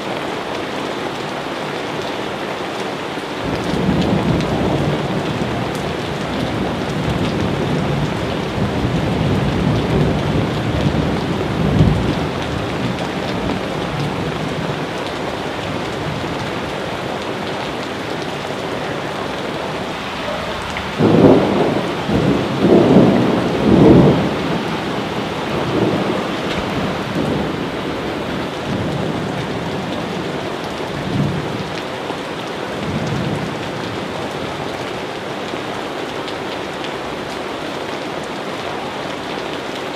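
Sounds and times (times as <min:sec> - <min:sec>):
steady rain: 0:00.0 - 0:39.9
thunder rumbling: 0:03.4 - 0:31.7.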